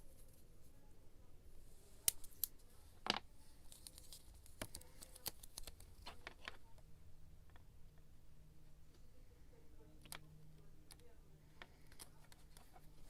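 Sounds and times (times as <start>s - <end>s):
small clicks of supplies handled: 2.0s - 6.8s, 10.9s - 13.0s.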